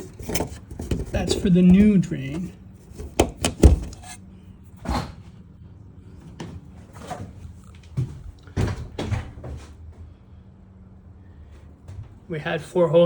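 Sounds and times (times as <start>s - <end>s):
objects knocking and clunking: 0.0s - 4.2s
steady low hum: 0.0s - 13.0s.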